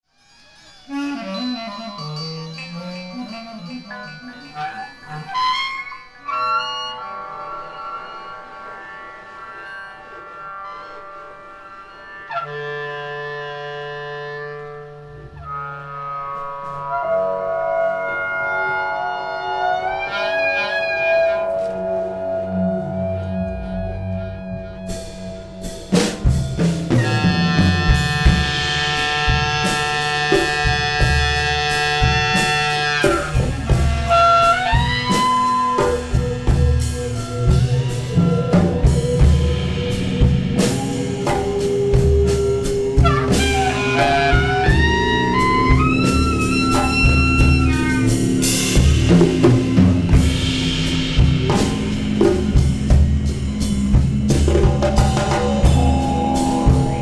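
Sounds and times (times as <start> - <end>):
drums and percussion: 0.2 - 8.2, 23.3 - 57.0
sliding melodic lines: 0.6 - 12.2, 32.3 - 54.1.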